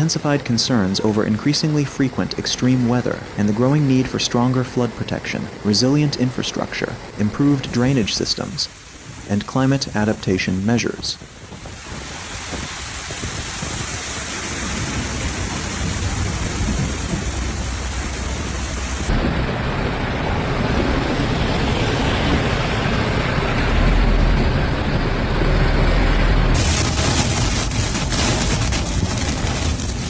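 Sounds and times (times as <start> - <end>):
heavy rain hissing: 0.0 - 30.0
deep rumble: 11.2 - 30.0.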